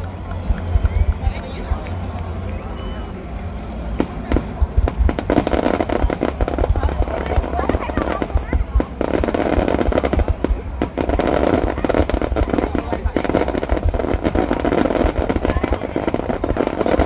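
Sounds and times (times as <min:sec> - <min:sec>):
fireworks booming and crackling: 0:03.5 - 0:17.0.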